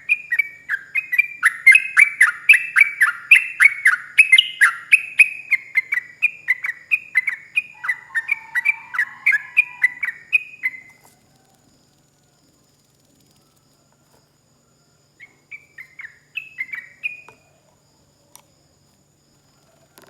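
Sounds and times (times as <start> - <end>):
bulbul singing whistled notes: 0.0 - 11.0, 15.2 - 17.4.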